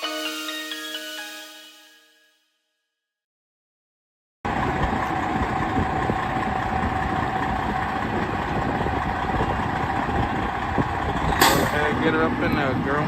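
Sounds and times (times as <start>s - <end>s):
truck diesel engine running: 4.5s - 13.0s.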